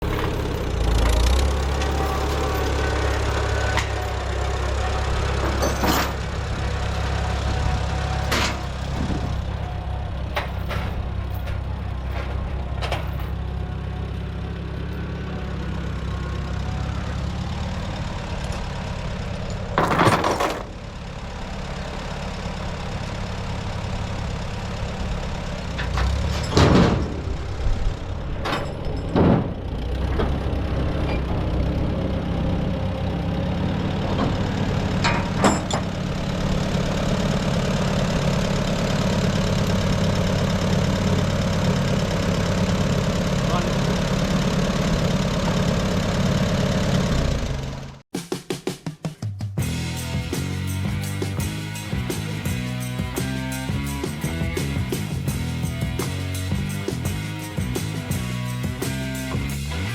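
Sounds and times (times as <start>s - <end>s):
sharp clanks: 0.0s - 13.5s, 19.5s - 20.8s, 25.7s - 27.6s, 28.3s - 30.4s, 34.1s - 36.1s
loud rattle: 0.0s - 16.1s, 17.8s - 32.4s, 49.6s - 59.9s
tractor engine idling: 0.0s - 48.0s, 49.6s - 59.9s.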